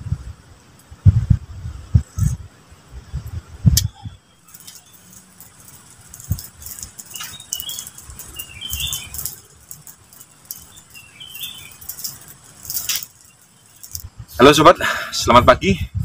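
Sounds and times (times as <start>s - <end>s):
low thumps: 1.0s - 4.2s
small birds chirping: 3.0s - 14.7s
faint clicks: 4.5s - 14.1s.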